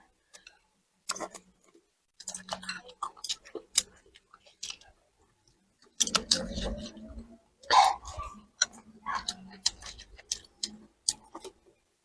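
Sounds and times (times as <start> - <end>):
chewing: 0.3 - 11.8
mouth clicks: 6.0 - 11.6.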